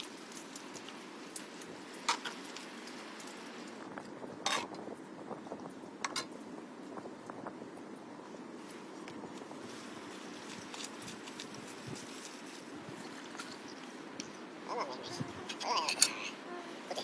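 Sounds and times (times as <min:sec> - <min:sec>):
dishes and utensils clinking: 0:15.5 - 0:16.4.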